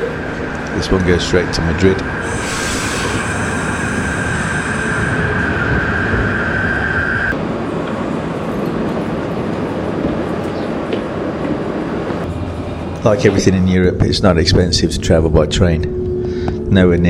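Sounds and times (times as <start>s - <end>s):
high whine: 0.0s - 8.0s
train rumbling: 0.0s - 17.0s.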